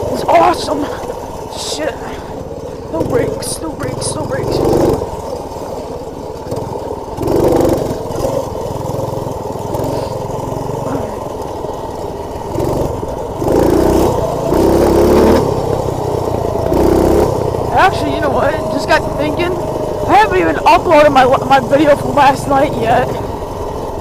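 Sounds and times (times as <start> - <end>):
minibike engine running: 0.0 - 24.0.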